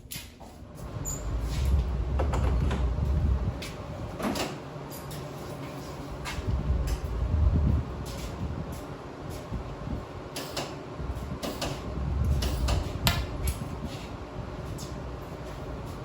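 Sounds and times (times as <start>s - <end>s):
low rumble: 0.8s - 4.2s, 6.1s - 10.1s, 11.0s - 16.0s.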